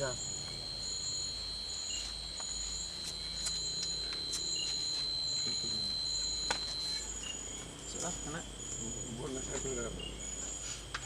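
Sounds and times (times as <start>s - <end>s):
insect high pulses: 0.0s - 11.0s
insect high-pitched trill: 0.0s - 11.0s.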